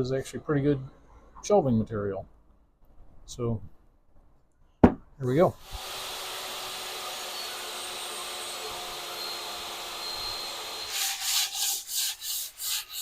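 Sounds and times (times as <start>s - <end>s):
small power tool running: 5.6s - 11.2s
sanding strokes on plywood: 10.8s - 13.0s.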